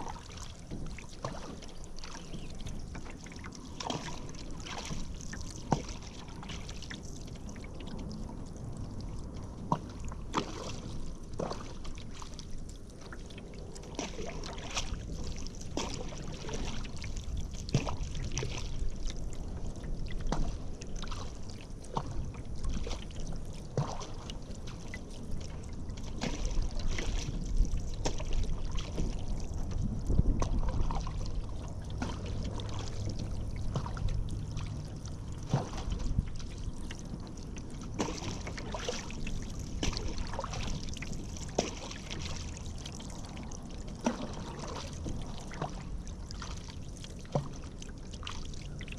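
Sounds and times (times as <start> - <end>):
paddle splashing in water: 0.0 - 8.4, 9.6 - 48.9
water dripping off paddle: 0.0 - 48.9
low rumble: 16.1 - 46.6.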